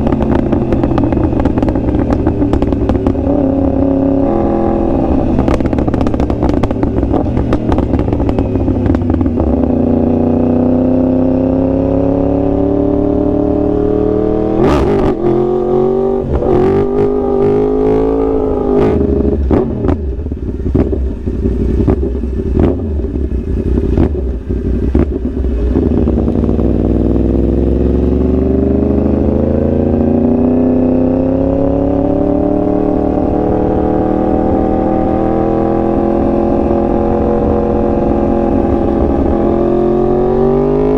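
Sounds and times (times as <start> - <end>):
sharp exhaust pops: 0.0 - 3.6, 5.3 - 9.5
motorcycle engine revving: 0.0 - 40.9.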